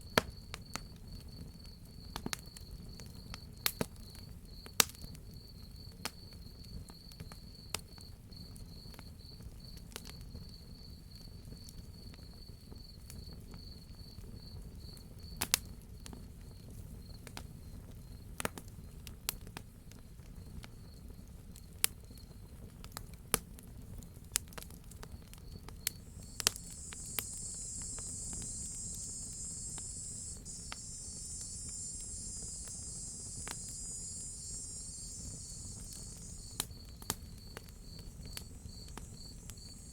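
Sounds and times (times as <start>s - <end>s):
cicadas buzzing: 25.9s - 39.9s
cricket chirping: 25.9s - 39.9s
wood fire crackling and popping: 25.9s - 39.9s.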